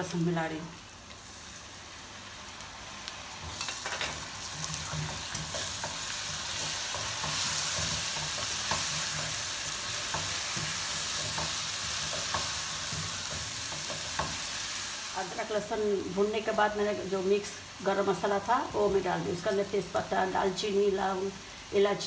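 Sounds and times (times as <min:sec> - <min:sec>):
food sizzling in hot oil: 0:00.0 - 0:22.0
spatula scraping and tapping pan: 0:03.4 - 0:09.4, 0:10.0 - 0:14.4.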